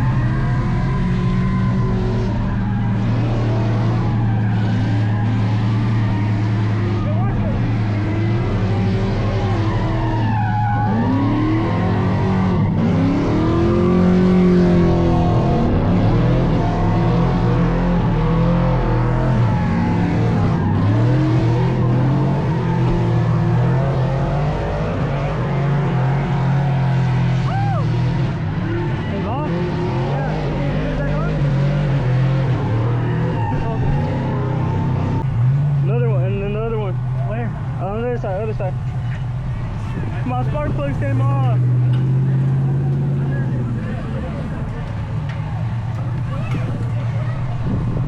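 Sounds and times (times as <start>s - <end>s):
truck engine at high revs: 0.0s - 48.0s.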